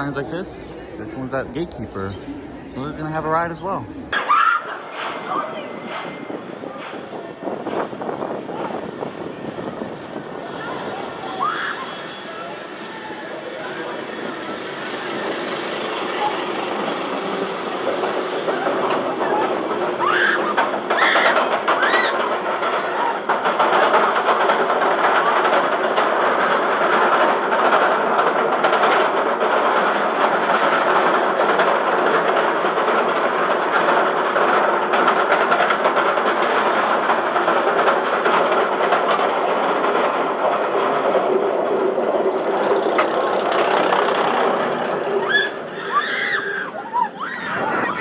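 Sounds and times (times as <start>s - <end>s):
roller coaster wheels rumbling on rail: 0.0s - 48.0s.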